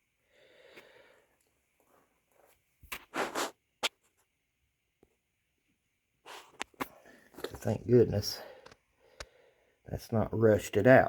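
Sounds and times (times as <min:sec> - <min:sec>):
short scraping sounds: 0:02.9 - 0:04.1.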